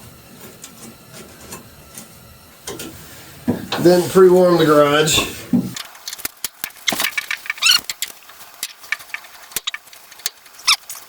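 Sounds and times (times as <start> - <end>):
screwdriver squeaks: 7.6 - 7.9.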